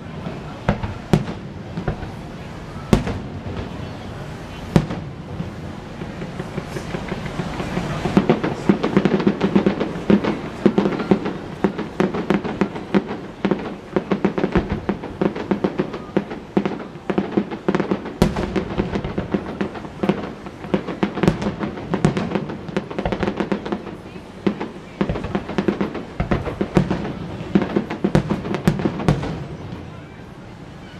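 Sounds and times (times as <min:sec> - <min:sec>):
fireworks crackling and banging: 0:00.0 - 0:30.9.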